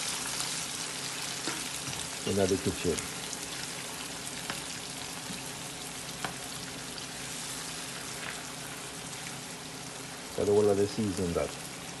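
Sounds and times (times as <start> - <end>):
food sizzling in a pan: 0.0 - 12.0
sharp pops of frying: 1.3 - 2.1, 4.3 - 6.8.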